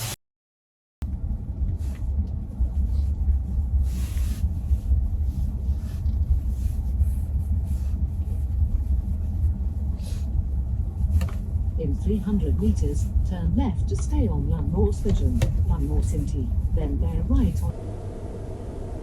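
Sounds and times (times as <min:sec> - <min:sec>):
car cabin rumble: 0:01.0 - 0:19.0
road or wind noise hissing: 0:01.8 - 0:12.9.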